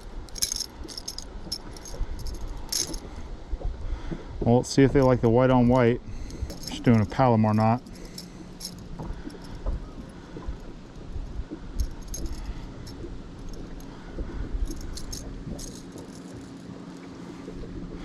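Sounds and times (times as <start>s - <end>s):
low steady hum: 0.0s - 18.0s
metallic clinks and jingles: 0.3s - 3.1s, 5.0s - 9.6s, 11.8s - 13.9s, 14.6s - 16.7s.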